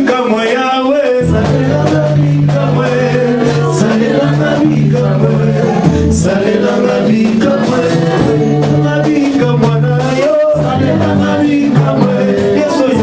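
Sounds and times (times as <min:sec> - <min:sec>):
band with bass line: 0:00.0 - 0:13.0
voices singing gospel: 0:00.0 - 0:13.0.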